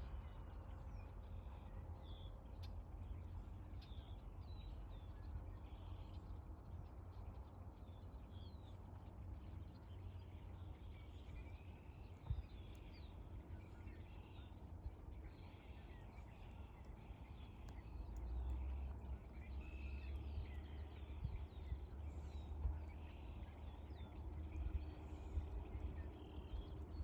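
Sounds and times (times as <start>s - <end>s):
small birds chirping: 9.4s - 27.0s
steady low rumble: 10.6s - 27.0s.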